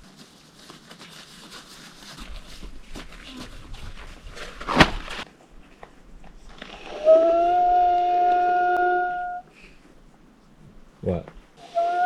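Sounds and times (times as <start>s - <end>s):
sharp crackle: 0.0s - 10.0s
rustling and crinkling: 0.0s - 12.0s
steady whistling tone: 6.8s - 9.9s.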